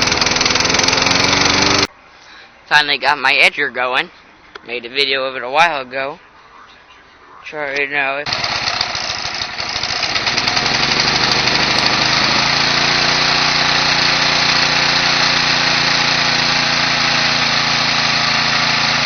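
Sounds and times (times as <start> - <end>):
small gasoline engine running: 0.0 - 1.9, 8.3 - 19.0.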